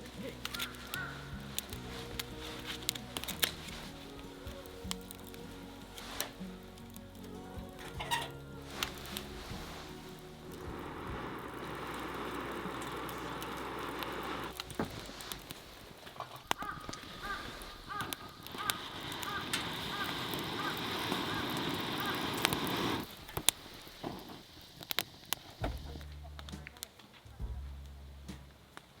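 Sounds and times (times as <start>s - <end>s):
bird calling: 0.0s - 23.0s
wood fire crackling and popping: 0.0s - 29.0s.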